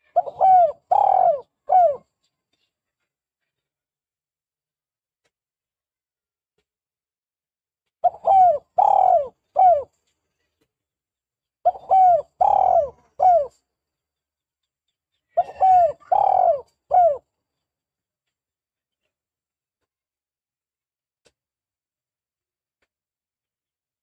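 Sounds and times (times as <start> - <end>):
dove cooing: 0.0 - 2.1, 8.0 - 10.0, 11.7 - 13.6, 15.4 - 17.2.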